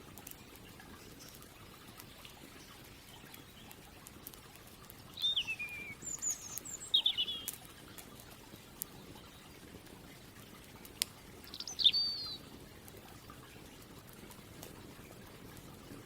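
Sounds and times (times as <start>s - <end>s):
campfire crackling: 0.0s - 16.0s
soft outdoor background: 0.0s - 16.0s
songbird whistling: 5.2s - 7.6s, 11.5s - 12.4s.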